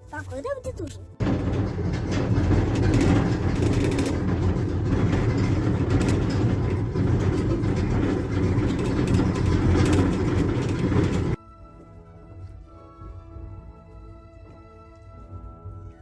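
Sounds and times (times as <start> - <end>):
vehicle rumble and rattle: 0.0 - 11.4.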